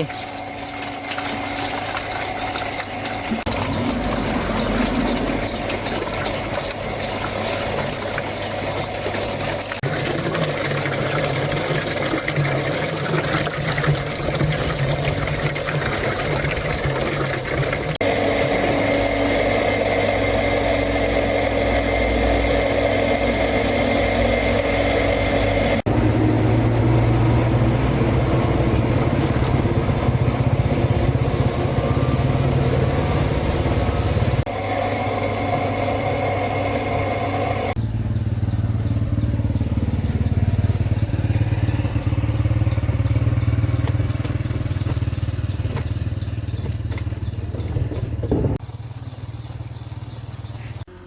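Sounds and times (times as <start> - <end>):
machine running: 0.0 - 37.8.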